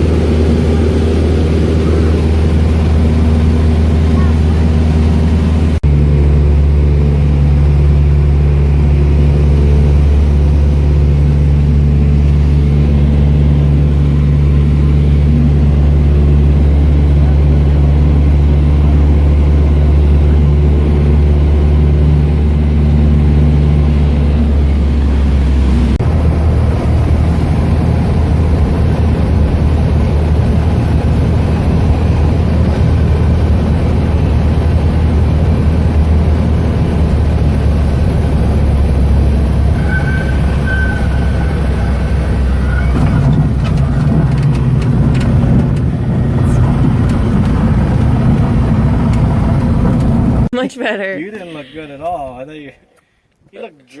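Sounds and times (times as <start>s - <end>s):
small airplane engine and propeller: 0.0s - 50.5s.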